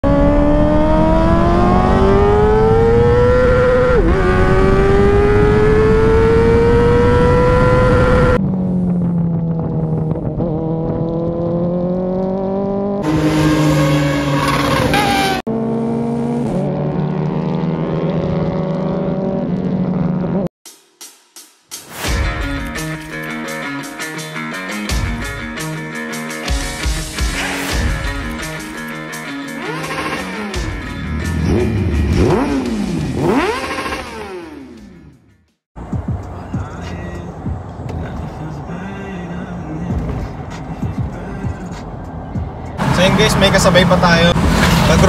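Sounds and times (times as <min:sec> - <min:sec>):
motorcycle engine revving high: 0:00.0 - 0:20.5, 0:29.4 - 0:35.2.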